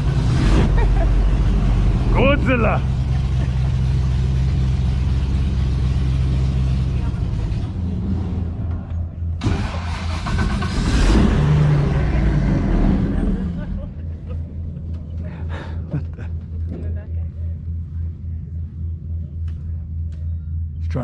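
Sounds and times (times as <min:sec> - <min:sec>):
boat engine running and revving: 0:00.0 - 0:14.7.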